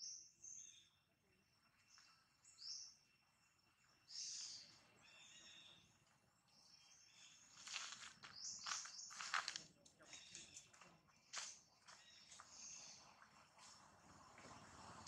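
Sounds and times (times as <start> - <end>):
faint birds chirping: 0.0 - 15.0
rustling: 7.6 - 9.6.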